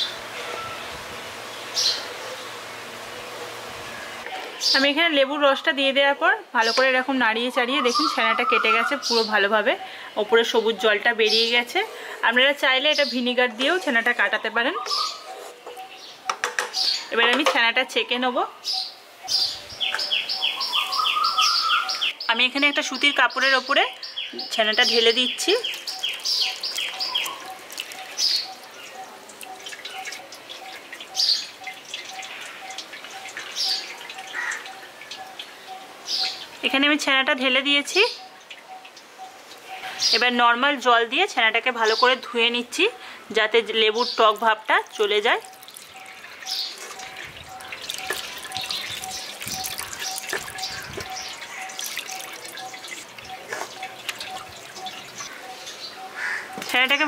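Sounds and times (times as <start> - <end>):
birds chirping: 6.6 - 57.0
whey trickling and dripping through cloth: 25.3 - 35.5, 44.2 - 55.4.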